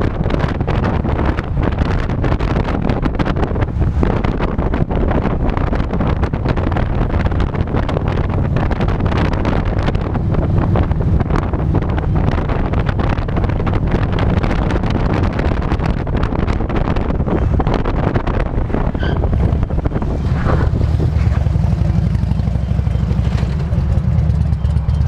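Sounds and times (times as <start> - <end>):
wind buffeting microphone: 0.0 - 25.0
motorcycle engine running: 19.3 - 25.0.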